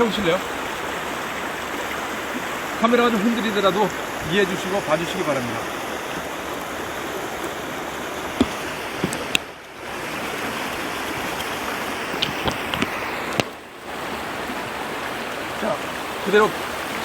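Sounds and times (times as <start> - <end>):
river flowing: 0.0 - 17.0
sharp clicks and knocks: 8.4 - 9.5.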